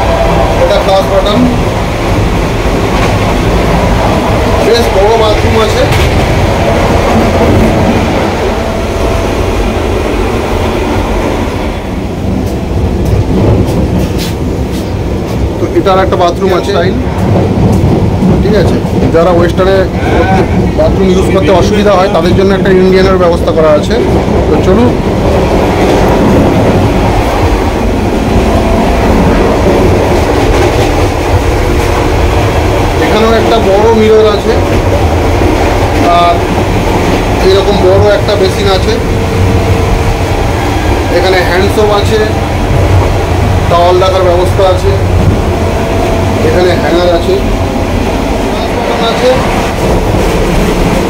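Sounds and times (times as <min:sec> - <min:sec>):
train wheels running on track: 0:00.0 - 0:51.0.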